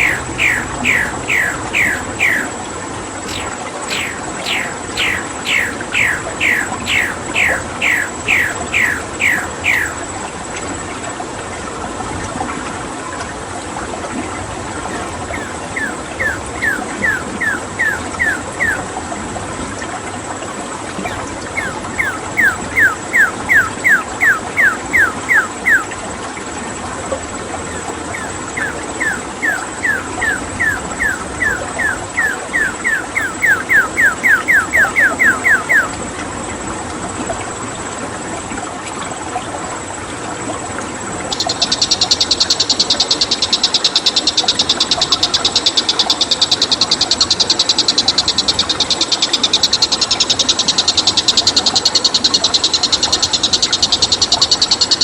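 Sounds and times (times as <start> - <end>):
bird calling descending notes: 0.0 - 10.1, 14.8 - 19.0, 20.4 - 26.0, 27.6 - 36.0
running water: 0.0 - 41.4.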